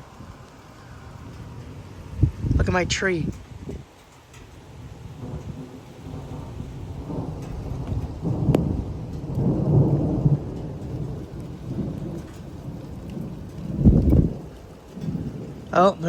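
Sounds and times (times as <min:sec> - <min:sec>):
steady falling rain: 0:00.0 - 0:16.0
thunder rumbling: 0:00.0 - 0:16.0
thunder crack: 0:04.7 - 0:16.0.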